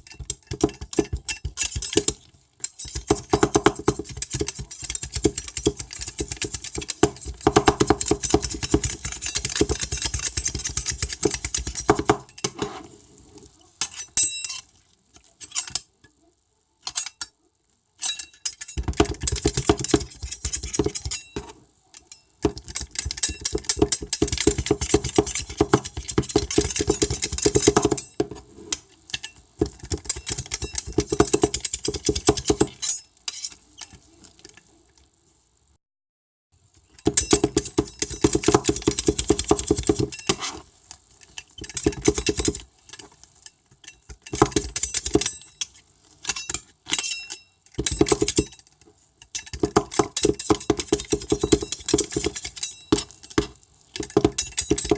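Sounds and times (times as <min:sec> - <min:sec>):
metal utensils scraping dishes: 0:00.0 - 0:03.2, 0:08.3 - 0:13.0, 0:13.8 - 0:15.9, 0:18.0 - 0:18.9, 0:30.1 - 0:34.6, 0:39.4 - 0:48.6.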